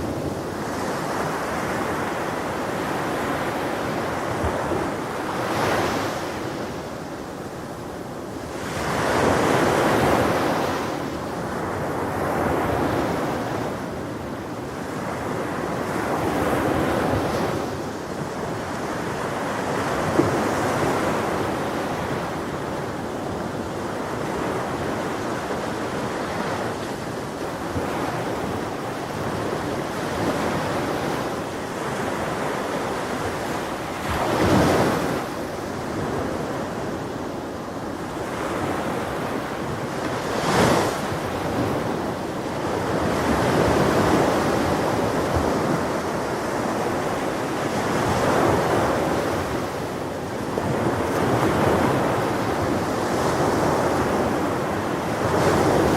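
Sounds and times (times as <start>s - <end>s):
ocean waves breaking: 14.7s - 55.9s.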